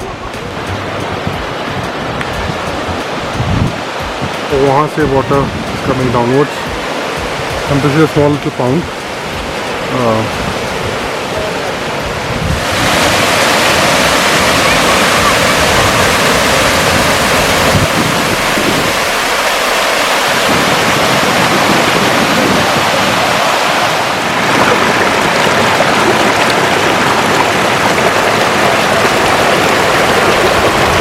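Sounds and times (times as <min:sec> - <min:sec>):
waterfall rushing into pond: 0:00.0 - 0:31.0.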